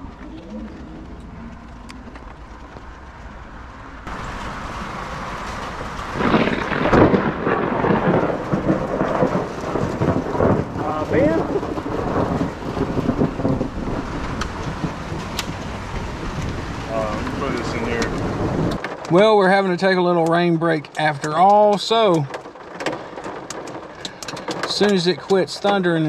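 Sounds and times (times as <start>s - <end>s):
steady rain: 0.0s - 26.0s
thunder rumbling and crackling: 0.0s - 26.0s.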